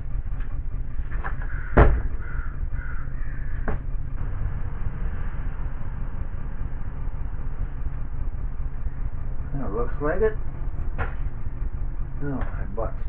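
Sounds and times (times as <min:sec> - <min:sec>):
low rumble: 0:00.0 - 0:13.0
crow cawing: 0:01.4 - 0:03.9
sharp knock: 0:01.7 - 0:02.1.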